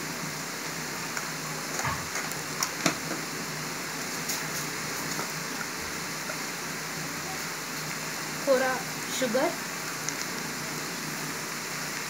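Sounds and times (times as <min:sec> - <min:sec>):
fried rice sizzling in a pan: 0:00.0 - 0:12.0.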